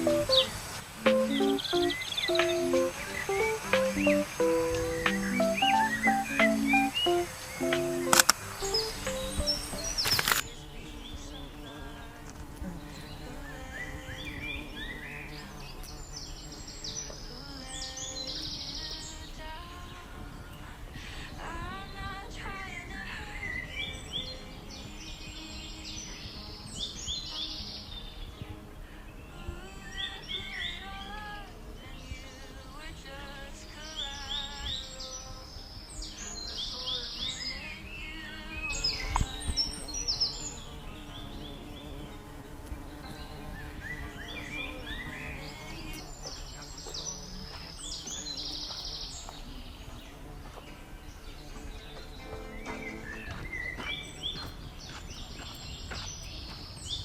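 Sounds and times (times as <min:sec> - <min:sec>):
birds chirping: 0:00.0 - 0:12.0, 0:33.9 - 0:57.0
outdoor background noise: 0:00.0 - 0:57.0
soft background music: 0:00.0 - 0:57.0.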